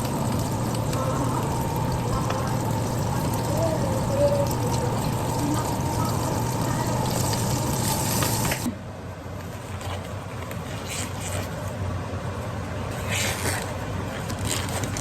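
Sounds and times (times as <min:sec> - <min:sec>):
liquid running: 0:00.0 - 0:08.7
low steady hum: 0:00.0 - 0:14.6.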